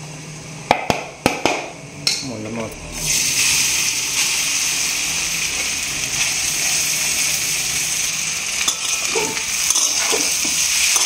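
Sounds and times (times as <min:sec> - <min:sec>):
fish sizzling in hot oil: 0:03.0 - 0:11.0
metal spatula stirring: 0:08.6 - 0:11.0.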